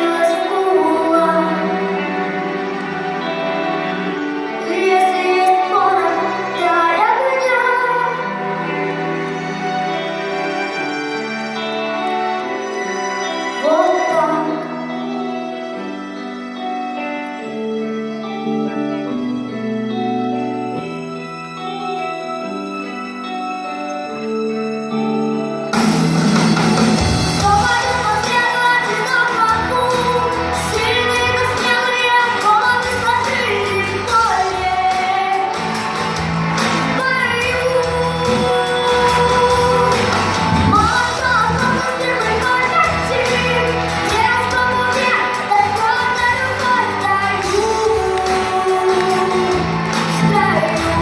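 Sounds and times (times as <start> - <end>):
person singing: 0.0 - 16.0, 27.2 - 51.0.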